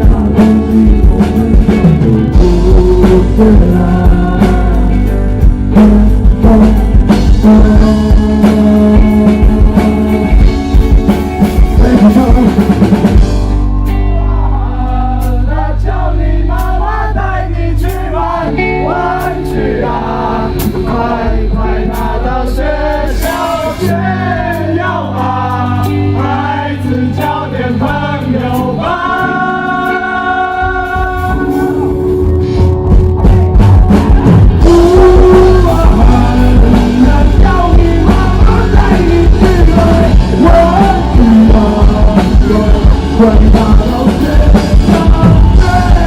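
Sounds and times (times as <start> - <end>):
drums: 0.0 - 46.0
rock band playing: 0.0 - 46.0
voices singing: 13.9 - 32.1, 34.1 - 46.0.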